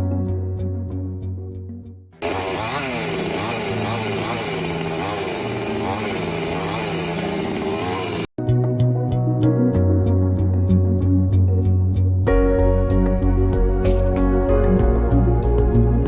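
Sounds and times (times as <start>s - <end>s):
music: 0.0s - 2.2s, 8.4s - 16.0s
two-stroke engine revving: 2.2s - 8.3s.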